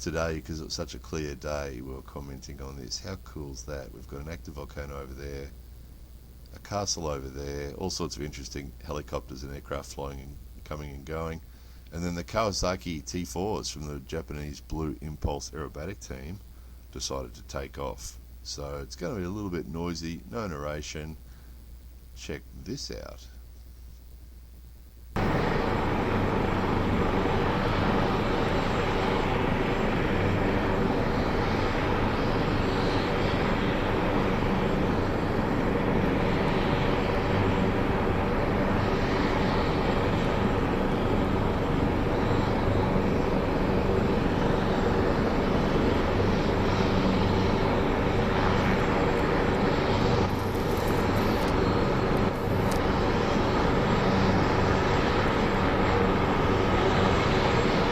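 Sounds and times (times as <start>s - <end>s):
jet engines at high power: 25.2s - 57.9s.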